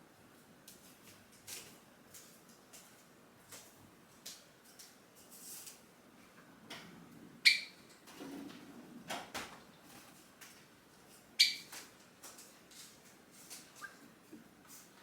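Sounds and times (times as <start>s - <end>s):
sparrow calling: 7.4s - 7.8s, 11.4s - 11.7s, 13.8s - 14.0s.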